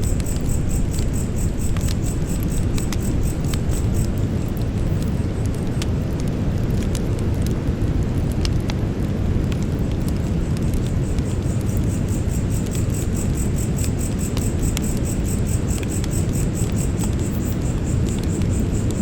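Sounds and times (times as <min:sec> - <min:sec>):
insect high-pitched pulsing: 0:00.0 - 0:05.2, 0:10.4 - 0:19.0
crackling campfire: 0:00.0 - 0:19.0.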